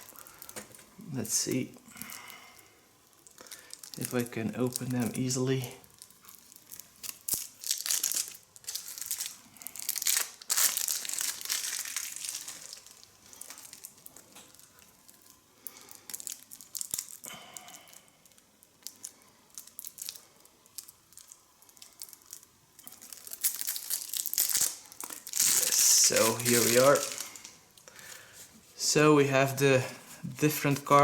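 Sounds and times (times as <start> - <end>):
card wrapping crinkling and tearing: 0.0 - 28.4, 30.1 - 31.0.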